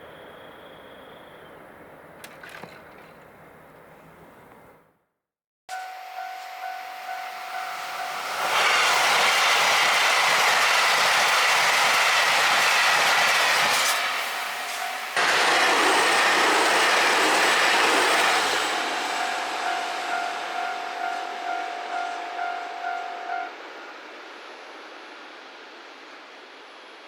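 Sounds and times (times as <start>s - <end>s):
diesel train passing at speed: 0.0s - 2.4s, 5.7s - 27.0s
level-crossing warning bell: 5.7s - 8.9s, 14.3s - 23.7s.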